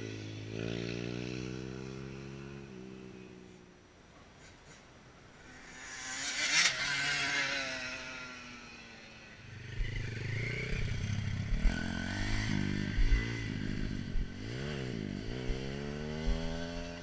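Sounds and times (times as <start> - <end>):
dirt bike engine revving: 5.4 - 17.0.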